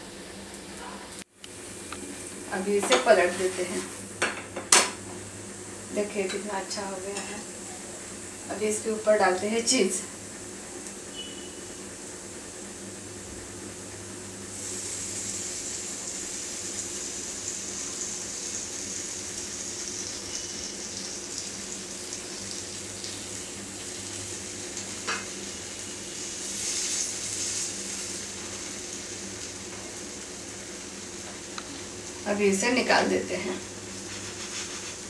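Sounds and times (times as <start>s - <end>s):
omelette sizzling in butter: 13.8s - 35.0s.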